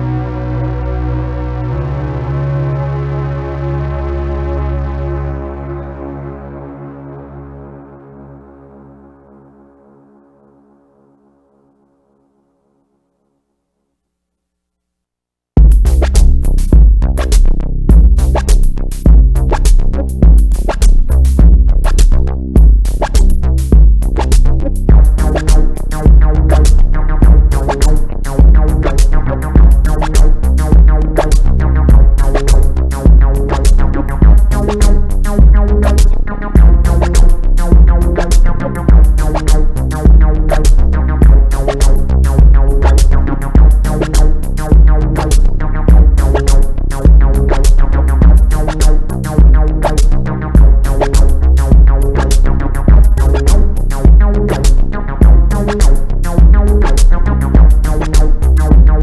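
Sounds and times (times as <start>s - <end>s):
electronic music with drum machine: 15.6s - 59.0s.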